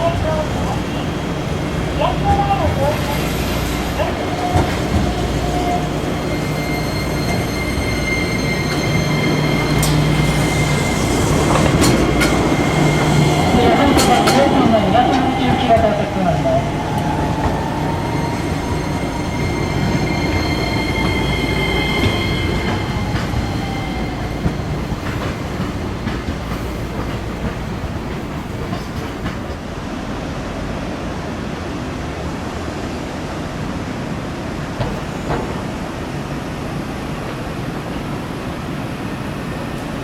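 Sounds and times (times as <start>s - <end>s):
streetcar motor whine: 0.4s - 28.6s
wheel squeal: 4.2s - 14.4s, 17.5s - 24.6s
wheels clicking over rails: 9.7s - 16.1s.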